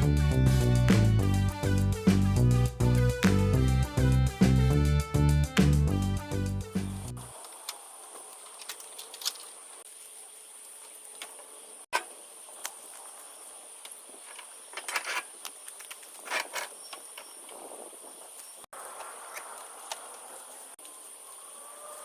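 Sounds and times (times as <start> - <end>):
insects chirring: 7.2 - 22.0
brief clicks and rustles: 7.4 - 9.6, 14.3 - 17.6.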